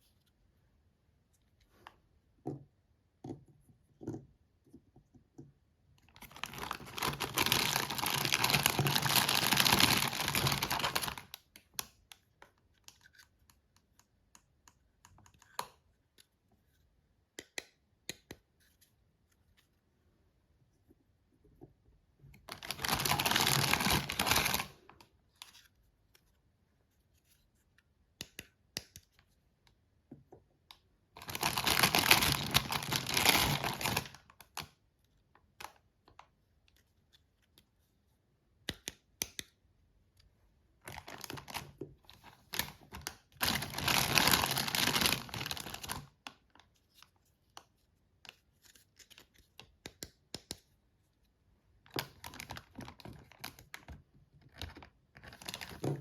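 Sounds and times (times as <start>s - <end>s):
packaging tearing and crinkling: 6.3s - 11.2s, 22.5s - 24.7s, 31.2s - 34.2s, 43.4s - 46.0s
small clicks and taps: 38.6s - 39.6s.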